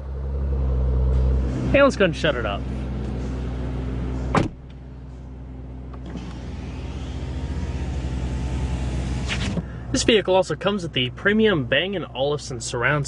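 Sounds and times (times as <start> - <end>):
car engine idling: 1.3 - 13.0
engine switch-off clunk: 3.0 - 9.7
pulsing electric motor whir: 6.0 - 9.6.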